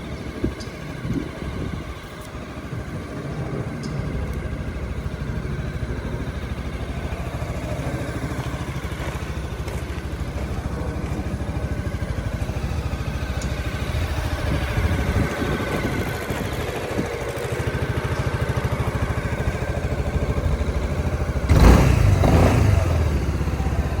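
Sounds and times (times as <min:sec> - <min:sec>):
scooter engine idling: 0:00.0 - 0:24.0.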